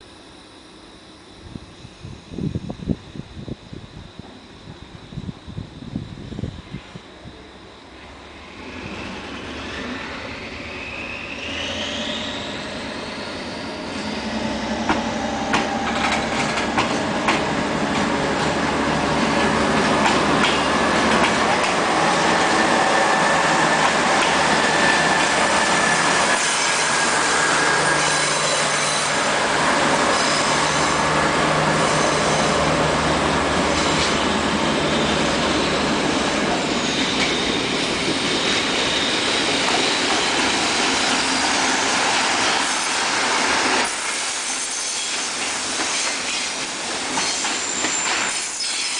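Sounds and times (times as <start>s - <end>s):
freight train rumbling past: 1.2s - 48.9s
steel wheels squealing on rail: 7.9s - 17.4s, 19.1s - 48.9s
wheels clacking over rail joints: 14.8s - 18.6s, 19.4s - 22.7s.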